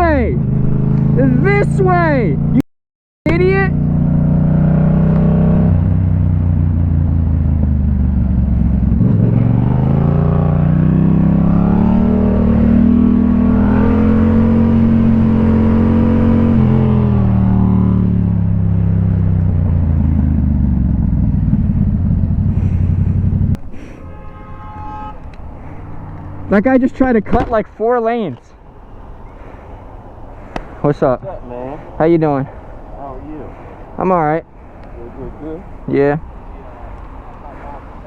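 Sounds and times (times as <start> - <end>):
motorcycle engine revving: 0.0 - 2.6, 3.3 - 26.8.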